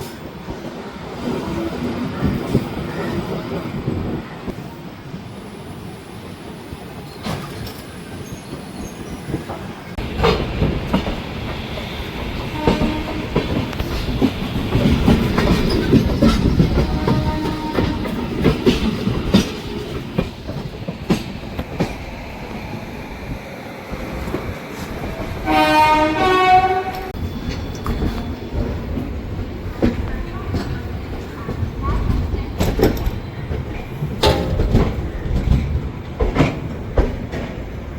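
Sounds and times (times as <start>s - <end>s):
train rumbling on rails: 0.0s - 37.9s
train horn: 12.5s - 13.7s, 16.7s - 18.2s, 25.4s - 27.2s.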